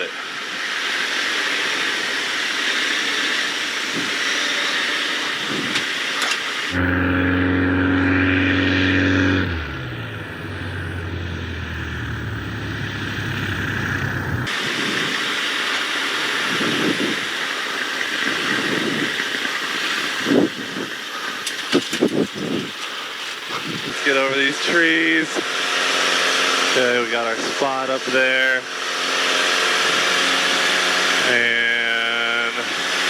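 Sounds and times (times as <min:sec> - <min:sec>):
aircraft engine droning: 0:00.0 - 0:33.0.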